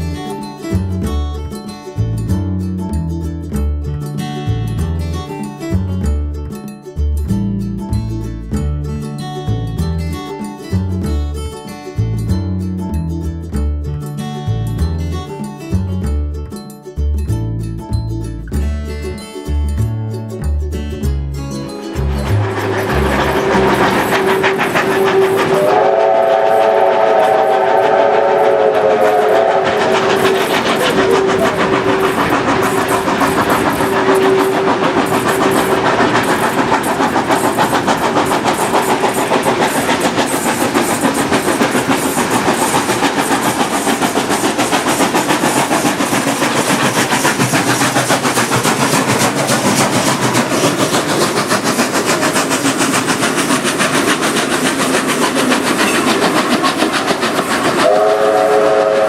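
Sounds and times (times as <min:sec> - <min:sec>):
wheels clattering on rails: 0:00.0 - 0:16.8, 0:21.4 - 0:59.0
steam locomotive chime whistle: 0:21.8 - 0:47.4, 0:55.6 - 0:59.0
low train whistle: 0:22.4 - 0:36.5, 0:57.8 - 0:59.0.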